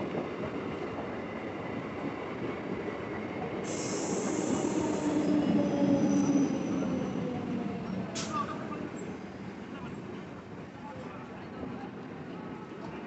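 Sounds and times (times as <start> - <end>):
electric train rumbling: 0.0 - 13.0
train wheels squealing: 3.7 - 9.1.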